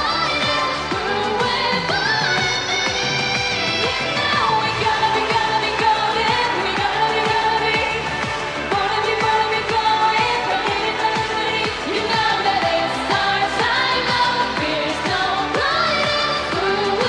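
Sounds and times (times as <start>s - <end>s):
pop song with woman singing: 0.0s - 17.0s.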